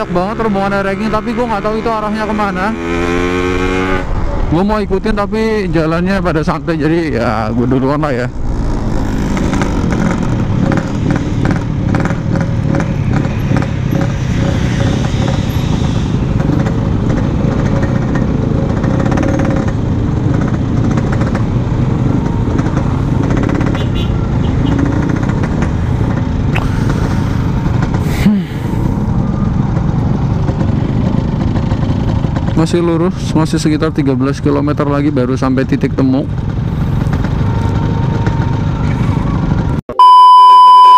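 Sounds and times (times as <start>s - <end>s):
two-stroke motorcycle engine running: 8.3s - 28.3s, 29.0s - 33.3s, 33.9s - 39.8s.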